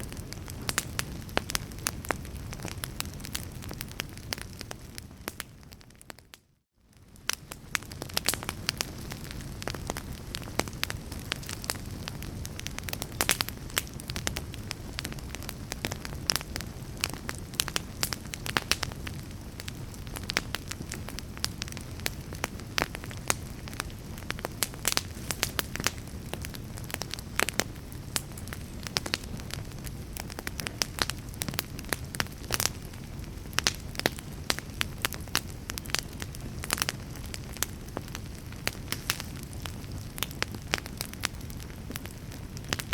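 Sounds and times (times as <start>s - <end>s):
fire crackling and popping: 0.0s - 42.9s.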